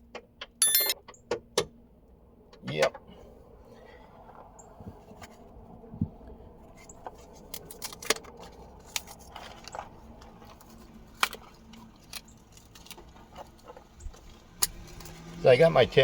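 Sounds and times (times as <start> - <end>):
metal sockets clinking: 0.6 - 1.0.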